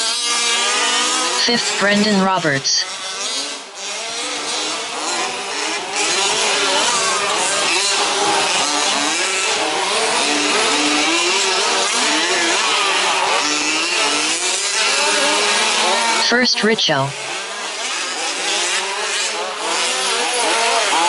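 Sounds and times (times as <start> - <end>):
rc truck engines revving: 0.0 - 21.0.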